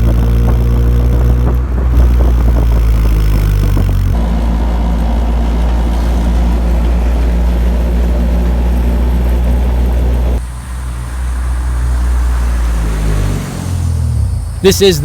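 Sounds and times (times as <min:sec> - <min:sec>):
car exhaust drone: 0:00.0 - 0:15.0.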